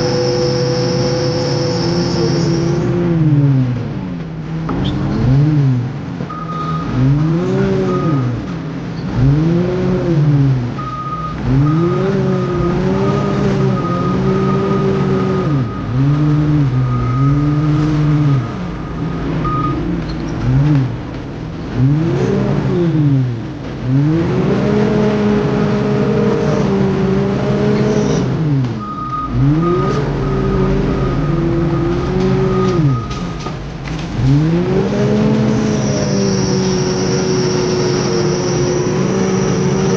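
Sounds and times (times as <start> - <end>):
reversing beeper: 0.0 - 3.0, 6.3 - 7.0, 7.8 - 8.4, 10.8 - 20.3, 28.8 - 39.9
diesel engine revving under load: 0.0 - 39.9.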